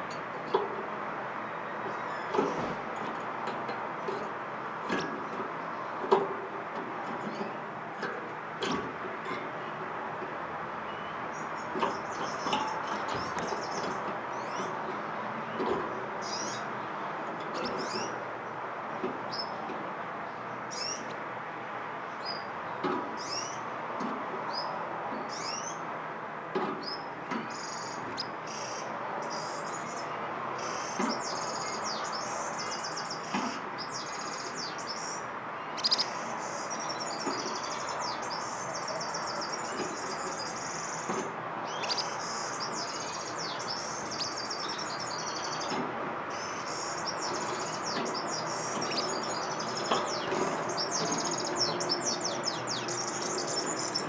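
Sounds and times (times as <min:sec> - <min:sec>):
small birds chirping: 0:00.0 - 0:21.4, 0:22.1 - 0:23.8, 0:24.5 - 0:25.9, 0:26.6 - 0:54.0.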